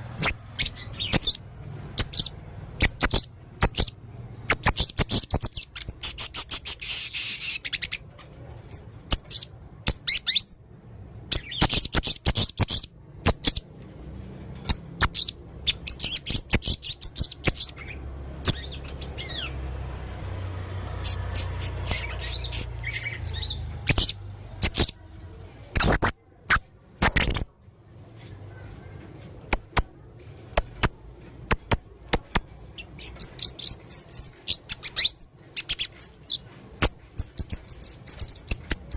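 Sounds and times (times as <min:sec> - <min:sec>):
parrot chirping and clicking: 0:00.1 - 0:01.4, 0:02.0 - 0:10.5, 0:11.3 - 0:19.5, 0:20.2 - 0:25.0, 0:29.5 - 0:29.9, 0:30.5 - 0:38.9.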